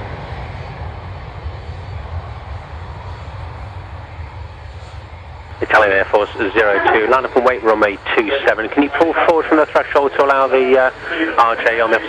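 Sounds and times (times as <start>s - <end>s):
military aircraft engine rumble: 0.0s - 12.0s.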